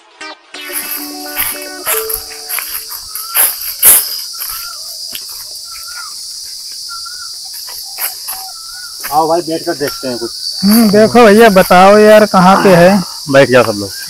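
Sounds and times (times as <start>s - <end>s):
short repeated chirp: 0.6s - 4.1s
footsteps in dry leaves: 0.6s - 11.9s
high-pitched insect drone: 0.6s - 14.0s.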